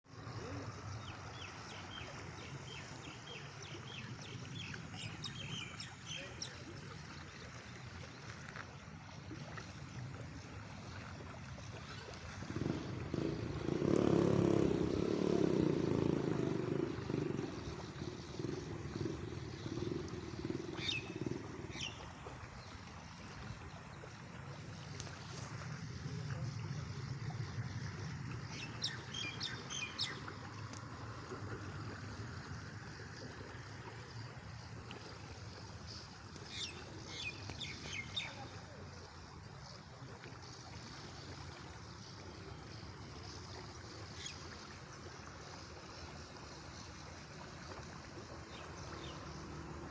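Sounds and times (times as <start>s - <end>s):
vehicle engine passing: 12.3s - 22.5s.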